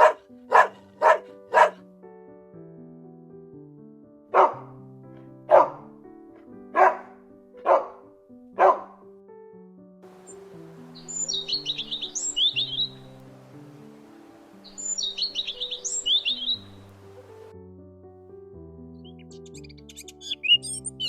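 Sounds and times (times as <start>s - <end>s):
dog barking: 0.0s - 1.8s, 4.3s - 4.7s, 5.5s - 5.9s, 6.7s - 9.0s
gentle background music: 0.0s - 21.0s
bird chirping: 10.1s - 17.5s, 19.0s - 21.0s.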